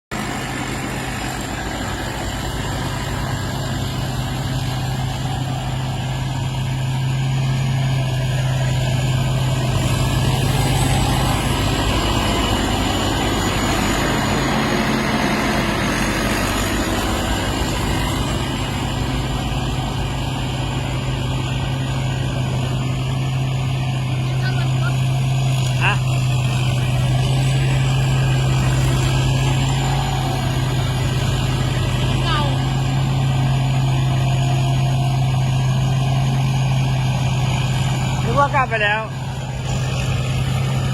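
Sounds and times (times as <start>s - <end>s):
combine harvester engine running: 0.1s - 40.9s.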